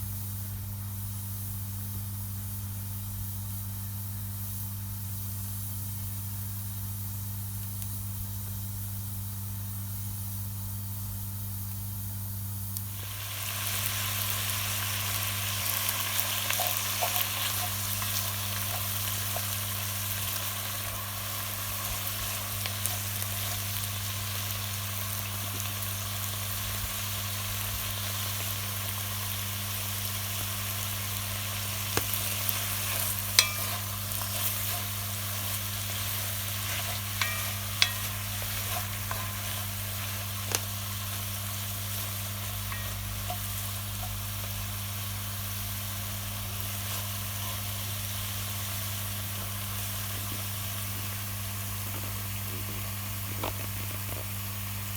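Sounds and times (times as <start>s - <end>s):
campfire crackling: 30.9s - 45.8s
burning wood popping: 31.7s - 44.8s.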